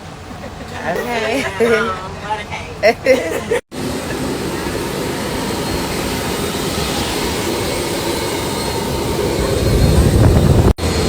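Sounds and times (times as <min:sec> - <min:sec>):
jet engine noise in cabin: 0:03.6 - 0:11.0.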